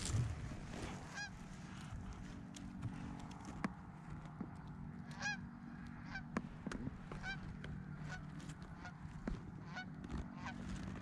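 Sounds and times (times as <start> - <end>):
geese honking: 1.1 - 1.4, 5.0 - 6.3, 7.1 - 10.6.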